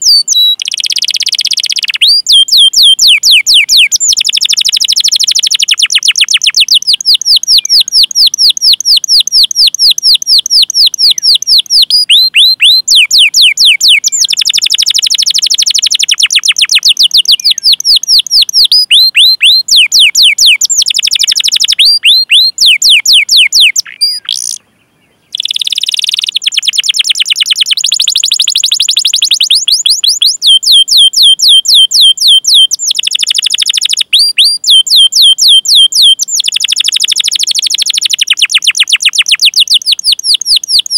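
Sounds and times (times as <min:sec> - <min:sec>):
canary chirping: 0:00.0 - 0:24.6, 0:25.3 - 0:40.9.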